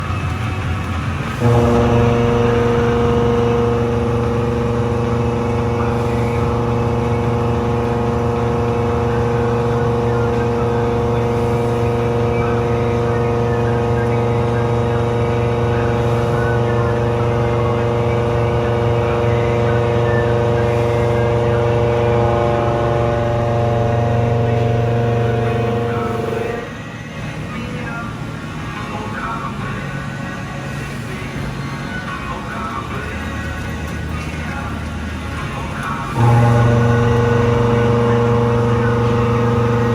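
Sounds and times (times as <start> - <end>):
milling machine cutting: 0.0 - 39.9.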